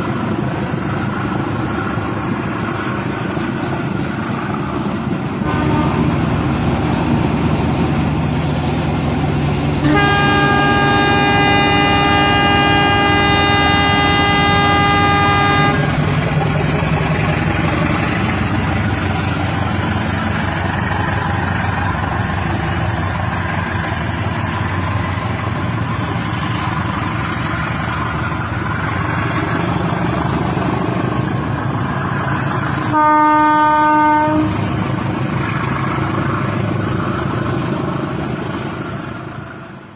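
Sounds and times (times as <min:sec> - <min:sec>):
toy train horn: 0:05.4 - 0:06.0, 0:09.8 - 0:16.0, 0:32.9 - 0:34.6.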